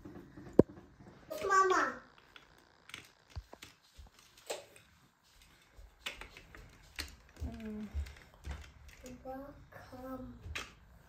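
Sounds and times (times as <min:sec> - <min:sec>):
plastic pieces clicking: 0:02.2 - 0:04.9.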